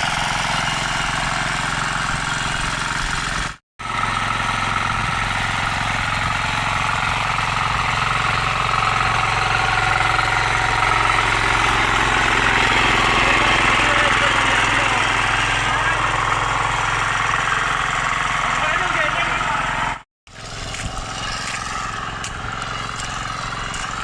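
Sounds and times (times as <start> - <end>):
weeder engine running: 0.0 - 24.0.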